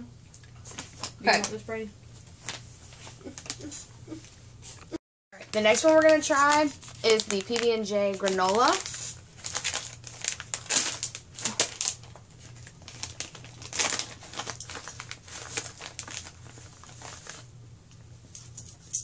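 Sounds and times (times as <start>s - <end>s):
plastic snack pouch crinkling: 5.4s - 17.5s.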